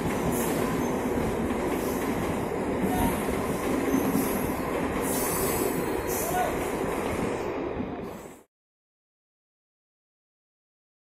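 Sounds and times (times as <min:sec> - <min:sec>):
train wheels rumbling on track: 0:00.0 - 0:08.5.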